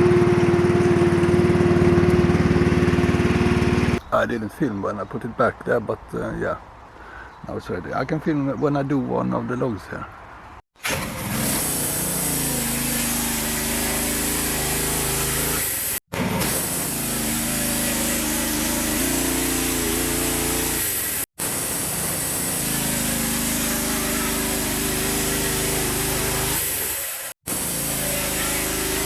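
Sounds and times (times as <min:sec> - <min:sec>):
saw engine cutting log: 0:10.8 - 0:29.0.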